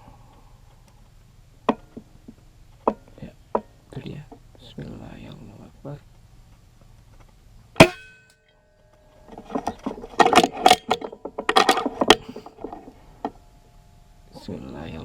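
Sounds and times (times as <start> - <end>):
clattering metallic clicks: 9.1 - 12.9.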